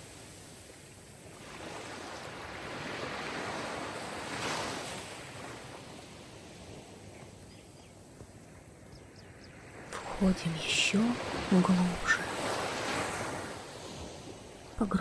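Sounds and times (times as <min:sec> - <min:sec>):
sea surf wave rushing: 0:09.8 - 0:15.0.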